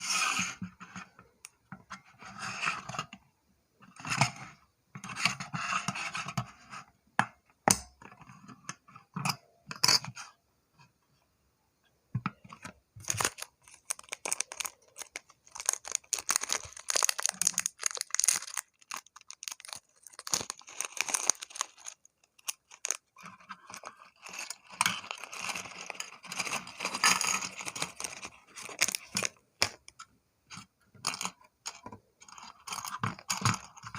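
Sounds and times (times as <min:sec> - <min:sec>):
packaging rustling and tearing: 0:13.0 - 0:29.8.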